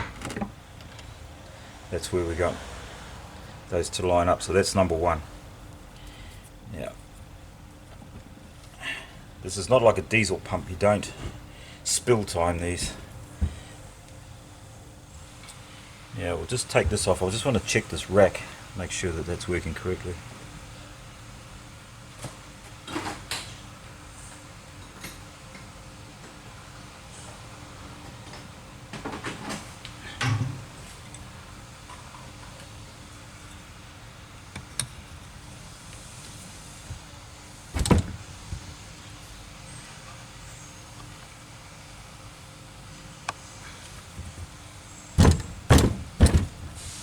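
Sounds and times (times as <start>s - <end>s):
steady low hum: 36.8s - 38.7s, 43.8s - 47.0s
loud short bangs: 37.8s - 38.3s, 45.2s - 47.0s.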